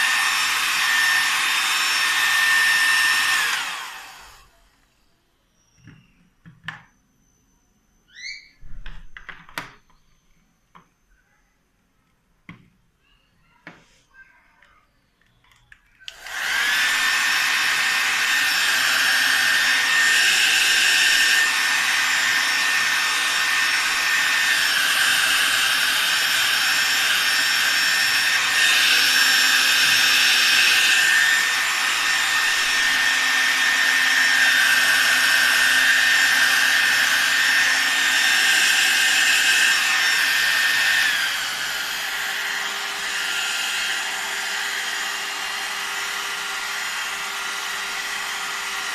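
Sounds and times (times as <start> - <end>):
hair dryer running with whine: 0.0 - 4.6, 16.1 - 48.9.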